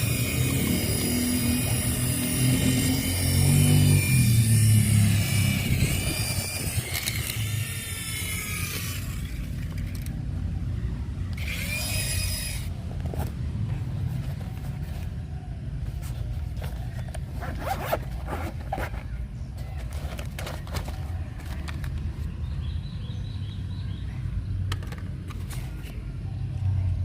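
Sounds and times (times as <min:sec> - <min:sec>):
toy car electric motor whining: 0:00.0 - 0:10.1, 0:11.4 - 0:12.8.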